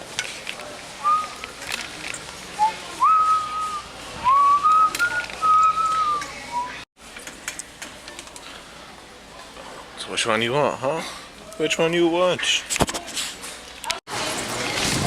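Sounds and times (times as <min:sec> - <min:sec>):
person whistling: 0:02.6 - 0:06.8.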